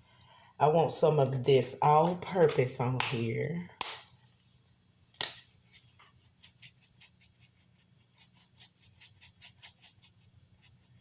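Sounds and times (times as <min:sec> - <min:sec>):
seasoning shaker shaking: 0:05.5 - 0:11.0.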